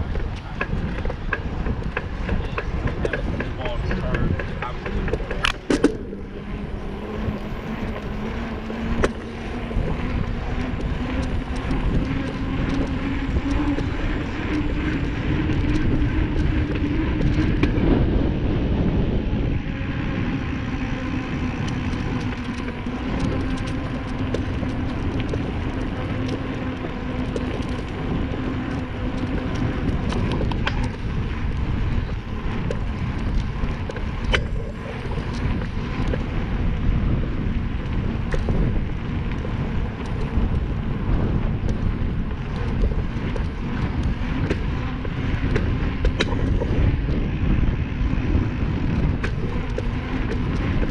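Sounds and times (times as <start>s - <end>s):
low hum: 0.0s - 50.9s
wind buffeting microphone: 0.0s - 50.9s.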